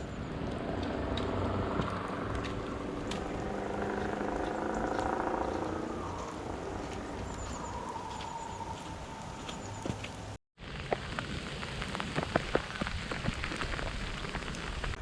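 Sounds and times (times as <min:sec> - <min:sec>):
vehicle engine passing by: 0:00.2 - 0:09.2.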